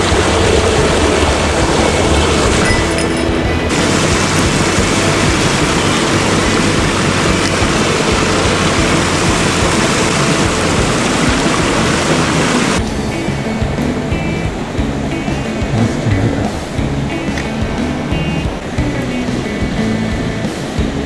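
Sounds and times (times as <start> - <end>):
mountain stream rushing: 0.0 - 12.8.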